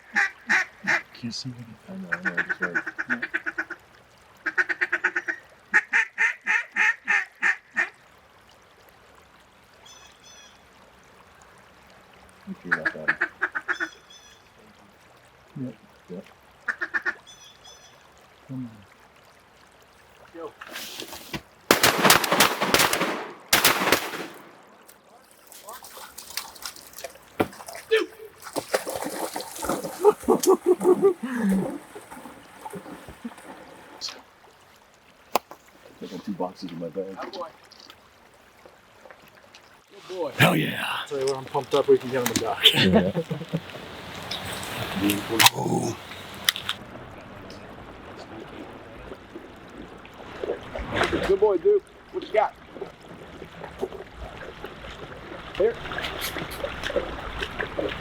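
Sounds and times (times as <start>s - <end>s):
duck call quacks: 0.0s - 1.0s, 2.1s - 3.8s, 4.4s - 7.9s
faint water: 0.0s - 58.0s
duck quacking: 2.1s - 3.8s
faint high calls: 40.3s - 46.7s.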